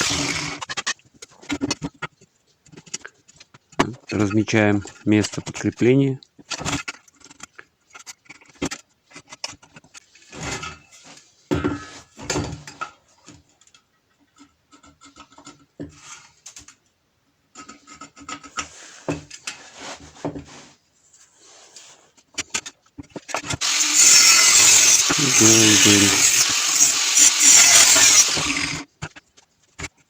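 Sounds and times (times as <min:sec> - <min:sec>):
scratching on steel tube: 0:23.5 - 0:29.2.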